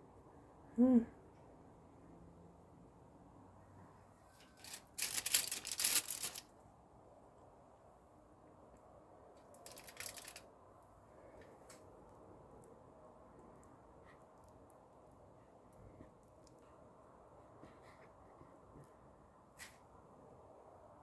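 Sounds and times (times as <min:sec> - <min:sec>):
crinkly rustling: 0:04.4 - 0:06.5, 0:09.6 - 0:10.4.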